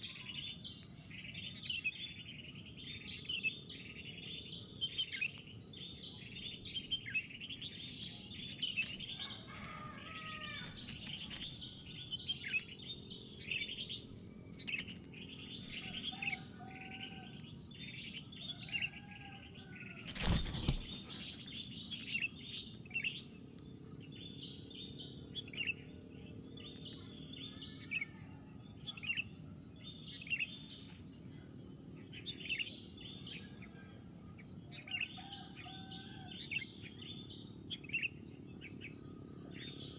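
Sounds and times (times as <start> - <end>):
birds chirping: 1.2 - 23.2
lower curving bird calls: 6.1 - 22.3.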